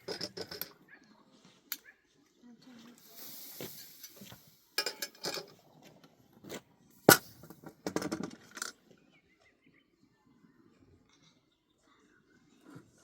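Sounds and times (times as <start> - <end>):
soft hiss: 3.0 - 4.8
dishes and utensils clinking: 3.6 - 5.6.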